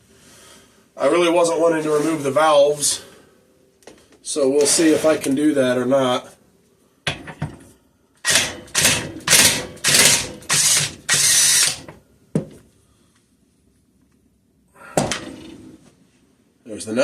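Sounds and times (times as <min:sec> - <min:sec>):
impact wrench hammering: 0:08.2 - 0:12.0.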